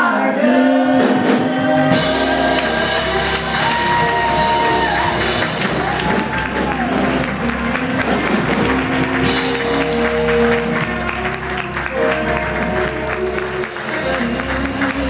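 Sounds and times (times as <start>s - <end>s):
worship band playing chords: 0.9s - 15.0s
congregation clapping and cheering: 1.9s - 15.0s.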